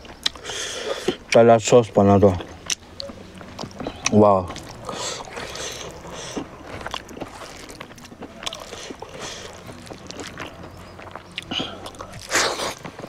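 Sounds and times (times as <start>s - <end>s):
person chewing and smacking: 0.0s - 1.5s, 2.1s - 13.0s
breathy rush: 4.8s - 6.8s.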